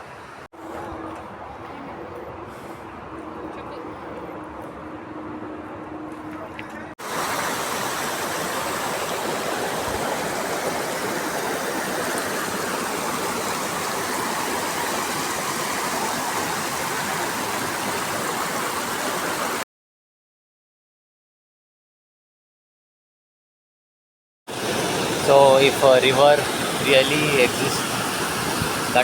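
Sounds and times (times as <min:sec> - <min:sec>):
waterfall rushing: 0:07.0 - 0:19.6, 0:24.5 - 0:29.0.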